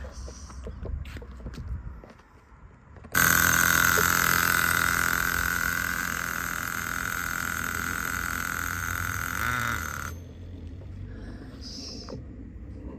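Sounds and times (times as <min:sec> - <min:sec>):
small model car engine whining: 0:03.1 - 0:10.7.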